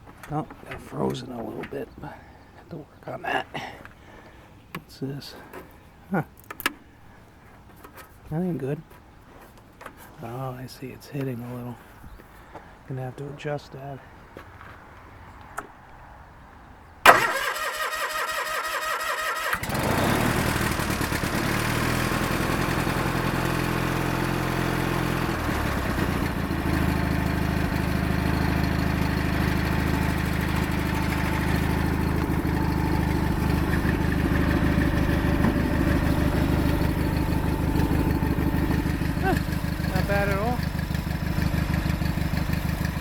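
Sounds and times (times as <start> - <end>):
starter cranking engine: 17.1 - 43.0
tractor engine running: 17.1 - 43.0.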